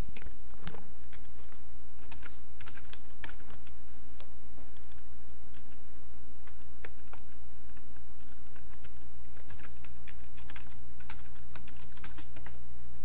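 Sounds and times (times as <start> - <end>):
steady low hum: 0.0 - 13.0
keyboard typing clicks: 2.0 - 3.8, 6.4 - 12.6.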